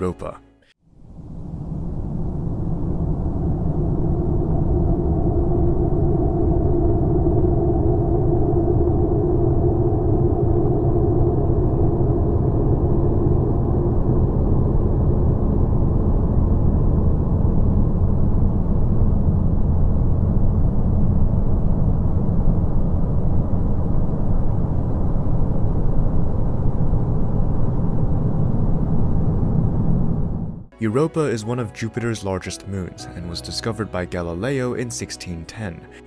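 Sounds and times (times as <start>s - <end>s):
faint humming tones: 0.9s - 30.7s
deep rumbling drone: 0.9s - 30.8s.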